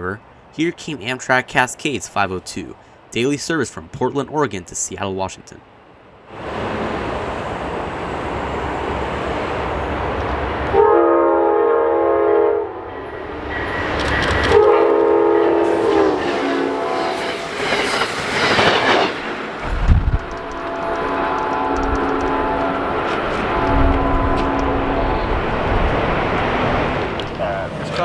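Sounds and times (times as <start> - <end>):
train rumbling on rails: 5.4 - 28.0
train horn blasts: 10.6 - 13.4, 14.4 - 17.5, 20.2 - 26.2
train wheel noise: 12.6 - 28.0.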